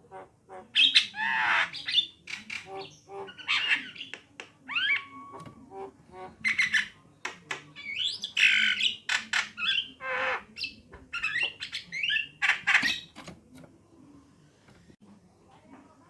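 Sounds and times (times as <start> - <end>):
birds squawking and chattering: 0.0 - 13.3.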